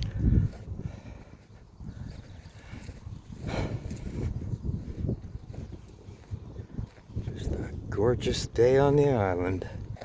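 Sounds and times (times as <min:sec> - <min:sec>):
footsteps walking: 0:00.0 - 0:07.7
wind buffeting microphone: 0:00.0 - 0:10.0.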